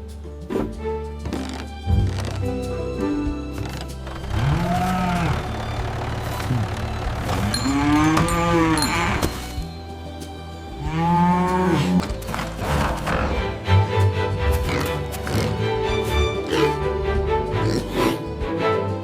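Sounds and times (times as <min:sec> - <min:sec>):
cow mooing: 0:04.3 - 0:05.5, 0:06.4 - 0:09.4, 0:10.8 - 0:12.1.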